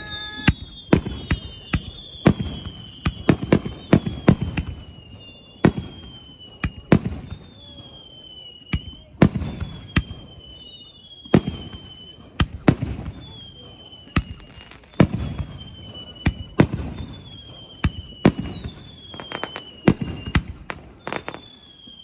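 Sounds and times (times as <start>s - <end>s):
descending firework whistles: 0.0s - 22.0s.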